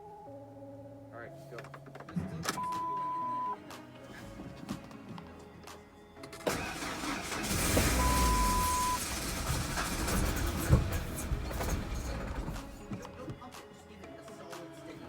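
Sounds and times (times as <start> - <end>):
truck engine starting and running: 6.2 - 13.2.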